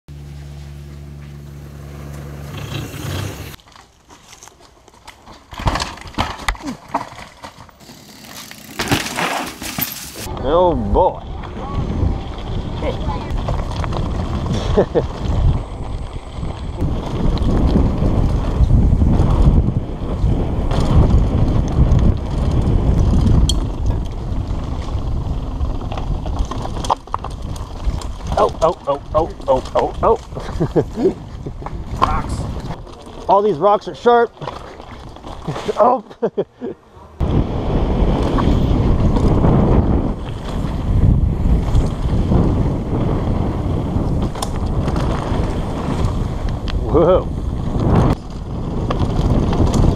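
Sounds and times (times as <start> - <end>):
bike clicking and rattling: 2.0 - 36.4, 37.8 - 49.9
tyres crunching over rocks: 3.5 - 10.3, 12.3 - 17.8, 20.7 - 35.8
wind buffeting microphone: 10.2 - 33.5, 37.1 - 49.9.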